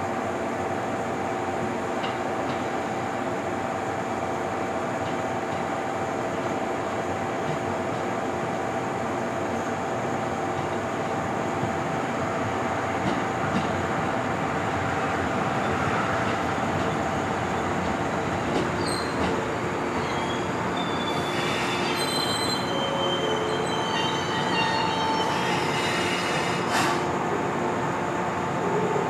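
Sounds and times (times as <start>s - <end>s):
electric train rumbling slowly: 0.0s - 29.0s
high wheel squealing: 18.8s - 19.3s, 19.9s - 27.0s.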